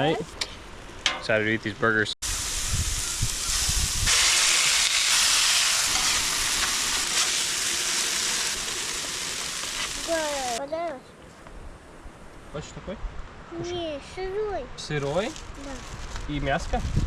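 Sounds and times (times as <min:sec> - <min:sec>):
burgers sizzling: 0:02.2 - 0:10.6.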